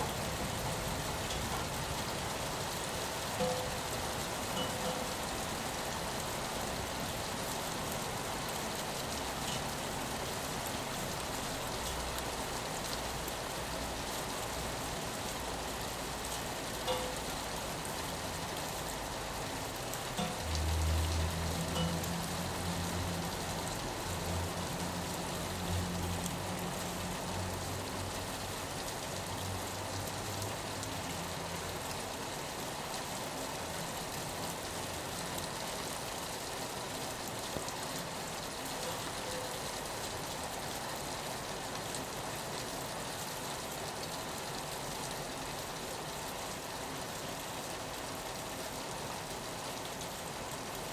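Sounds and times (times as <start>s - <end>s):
rain on a window: 0.0s - 50.9s.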